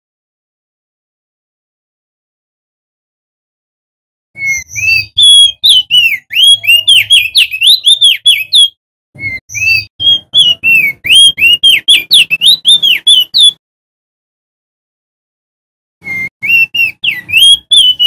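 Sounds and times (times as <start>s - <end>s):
bird singing whistled notes: 4.4s - 13.6s, 16.0s - 18.0s.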